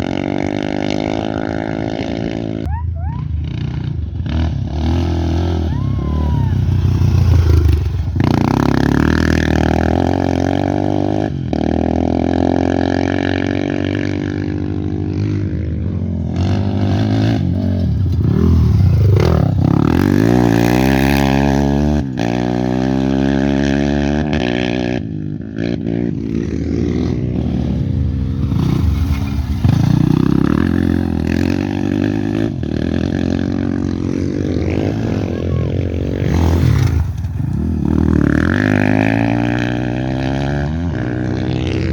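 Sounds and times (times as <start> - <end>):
racing motorcycles passing: 0.0 - 41.9.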